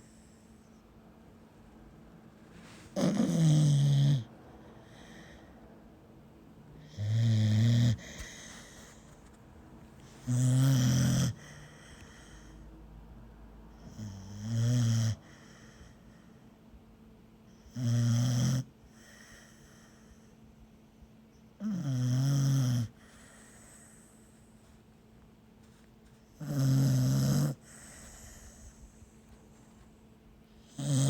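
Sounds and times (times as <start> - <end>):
dog snoring: 2.6 - 5.4, 6.8 - 9.3, 10.0 - 12.6, 13.7 - 16.0, 17.6 - 19.8, 21.6 - 24.8, 25.7 - 29.8, 30.6 - 31.0.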